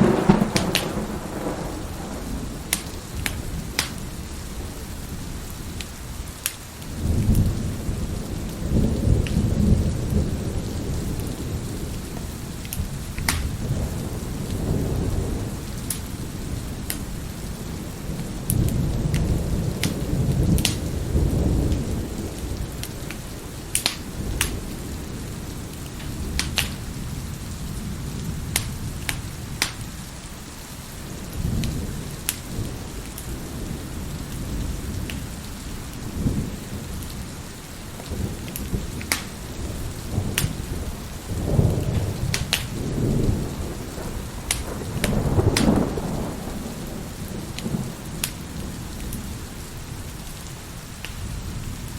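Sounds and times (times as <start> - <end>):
wood fire crackling and popping: 0.0 - 1.1, 2.7 - 4.0, 5.8 - 7.4, 9.2 - 9.4, 12.0 - 13.7, 15.8 - 16.2, 16.8 - 17.2, 18.2 - 20.9, 22.7 - 24.8, 25.7 - 27.0, 28.5 - 29.9, 31.6 - 33.3, 37.9 - 39.6, 40.3 - 40.7, 41.7 - 43.5, 44.3 - 46.0, 47.6 - 49.3
heavy rain: 0.0 - 51.9
thunder rumbling: 0.0 - 51.9.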